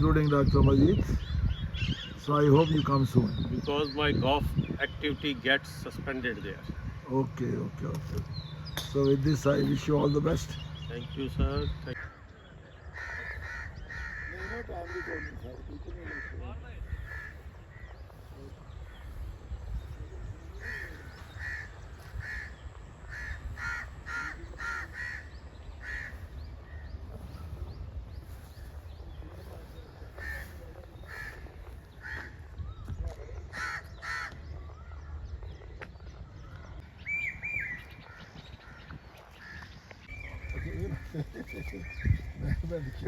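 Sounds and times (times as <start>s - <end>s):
crows cawing: 11.9s - 19.3s, 20.2s - 26.9s, 30.1s - 32.5s, 33.5s - 34.9s.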